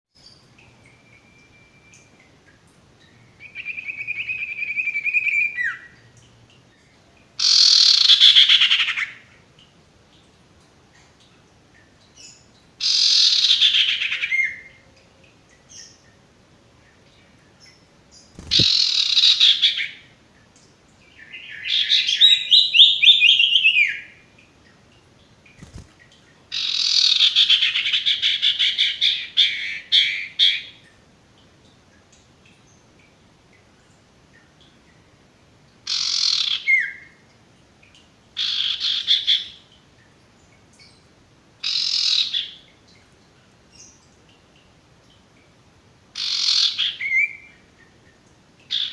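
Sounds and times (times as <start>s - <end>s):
bird calling: 18.3s - 20.0s.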